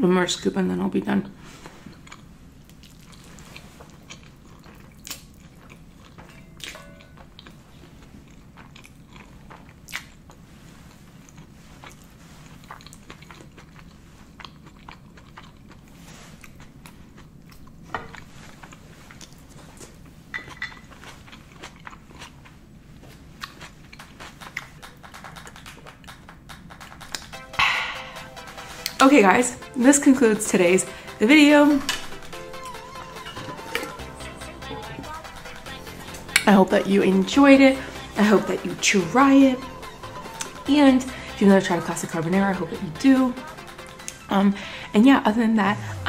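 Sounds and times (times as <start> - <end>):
chewing and wet mouth sounds: 1.8 - 26.2, 43.5 - 44.3.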